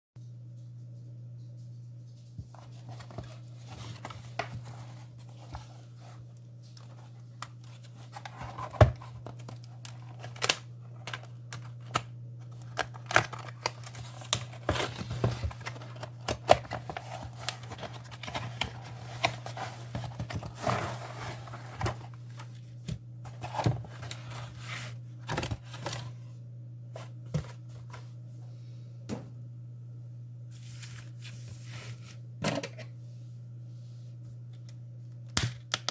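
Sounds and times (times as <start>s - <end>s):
steady low hum: 0.2s - 35.9s
plastic and paper crinkling: 2.5s - 26.1s.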